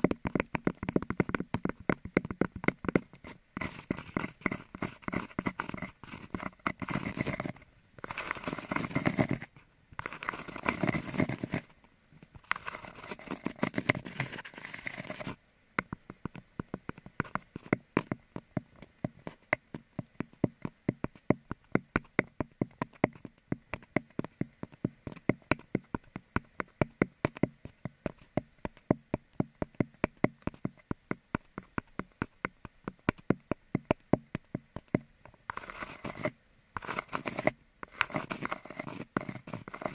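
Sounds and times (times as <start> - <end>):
scratchy rubbing on microphone: 0.0 - 11.8, 12.4 - 15.4, 35.5 - 39.9.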